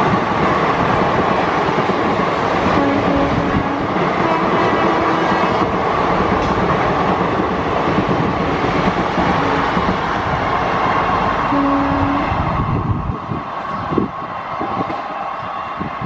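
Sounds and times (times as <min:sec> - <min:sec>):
train wheels rushing and clattering: 0:00.0 - 0:16.0.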